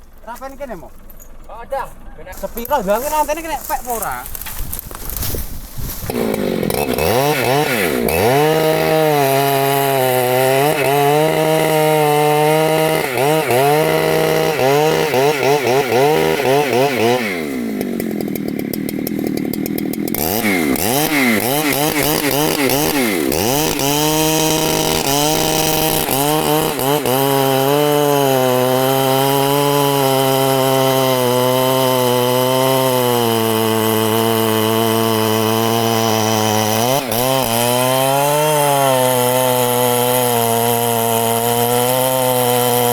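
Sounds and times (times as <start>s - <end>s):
chainsaw cutting wood: 0.0s - 42.9s.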